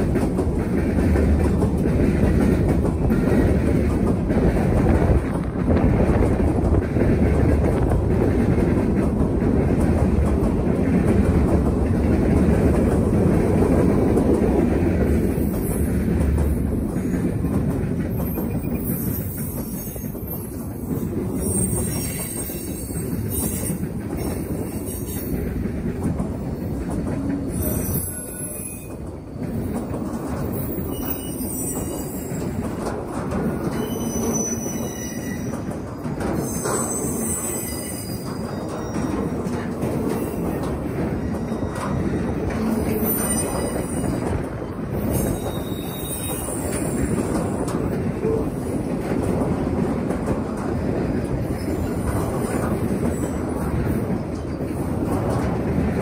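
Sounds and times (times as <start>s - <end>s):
train wheels rumbling on rails: 0.0s - 56.0s
high wheel squeal: 21.4s - 23.8s, 27.5s - 28.9s, 30.6s - 32.5s, 33.7s - 35.6s, 36.4s - 39.3s, 42.7s - 44.2s, 45.0s - 47.2s.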